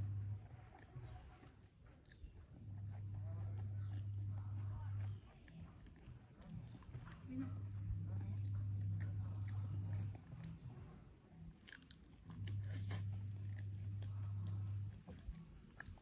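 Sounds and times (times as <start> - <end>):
low steady hum: 0.0 - 16.0
wet chewing and biting: 0.7 - 3.2, 7.9 - 10.8, 11.4 - 16.0.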